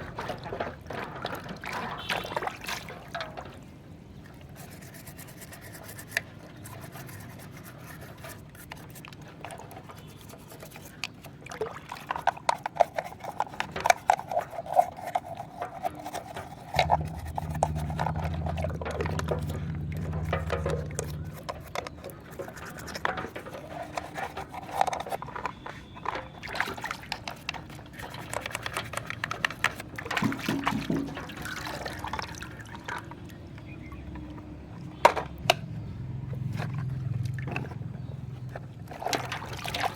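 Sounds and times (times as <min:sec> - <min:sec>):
water pouring and splashing: 0:00.0 - 0:39.9
plastic toys knocking: 0:15.5 - 0:31.6.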